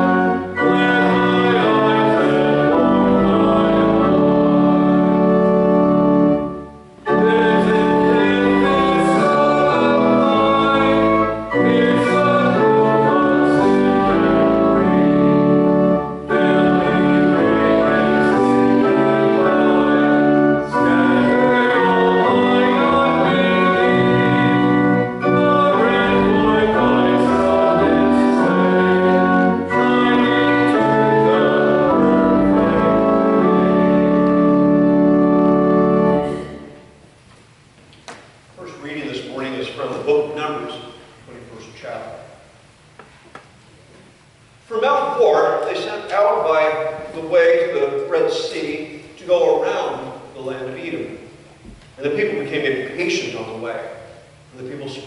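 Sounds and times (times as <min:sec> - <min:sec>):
congregation singing a hymn: 0:00.0 - 0:37.0
organ playing held chords: 0:00.0 - 0:37.2.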